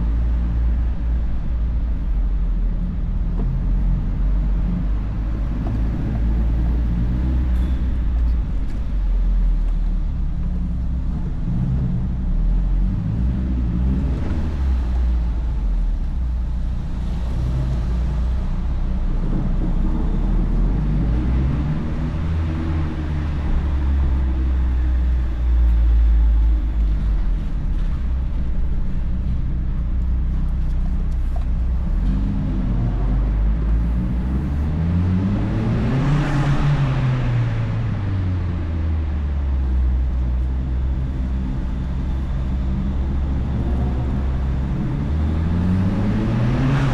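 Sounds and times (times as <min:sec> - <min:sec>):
car engine revving while driving: 0:11.4 - 0:25.3, 0:31.5 - 0:46.9.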